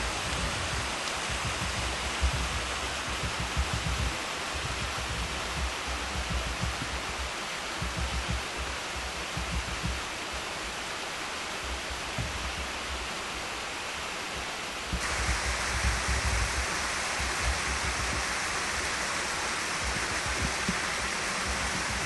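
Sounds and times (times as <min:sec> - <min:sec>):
low rumbling bumps: 0:00.0 - 0:10.1
waterfall roaring: 0:00.0 - 0:22.0.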